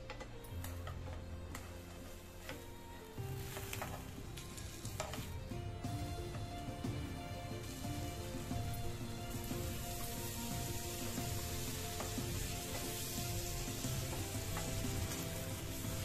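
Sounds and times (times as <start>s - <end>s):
bread sizzling in a pan: 1.6s - 16.0s
wooden spatula scraping a pan: 3.3s - 5.4s, 9.4s - 16.0s.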